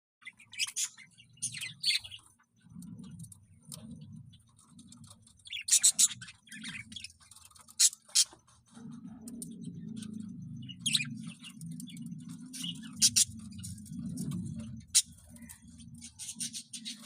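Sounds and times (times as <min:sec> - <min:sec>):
budgerigars chirping: 0:00.2 - 0:02.3, 0:05.4 - 0:08.4, 0:10.6 - 0:14.3, 0:14.9 - 0:17.0.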